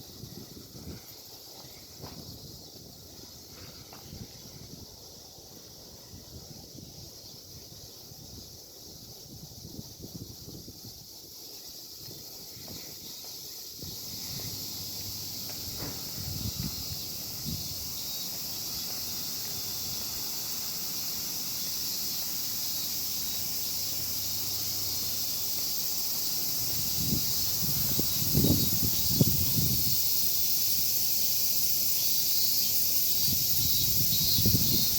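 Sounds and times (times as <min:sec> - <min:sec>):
wind buffeting microphone: 0:00.0 - 0:20.1, 0:26.5 - 0:30.2, 0:33.2 - 0:34.9
cicadas shrilling: 0:00.0 - 0:34.9.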